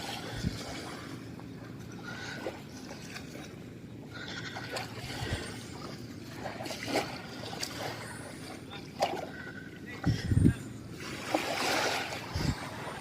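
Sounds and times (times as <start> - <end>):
small waves lapping on sand: 4.2 - 9.6, 10.9 - 13.0.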